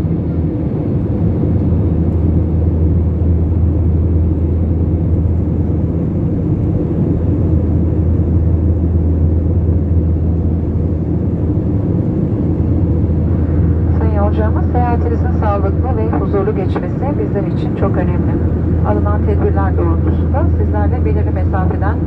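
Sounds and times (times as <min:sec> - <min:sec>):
jet engine cabin rumble: 0:00.0 - 0:22.0.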